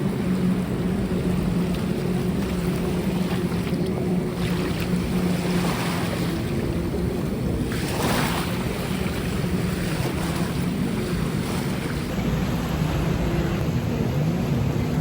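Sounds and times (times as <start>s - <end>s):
rushing water: 0.0s - 13.6s
jet ski engine humming: 0.0s - 15.0s.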